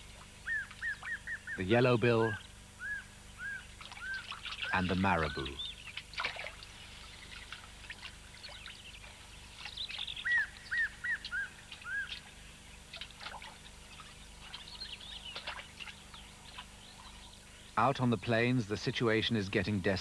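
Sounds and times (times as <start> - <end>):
birds calling: 0.0 - 20.0
water splashing and trickling: 3.8 - 10.6, 11.7 - 17.3.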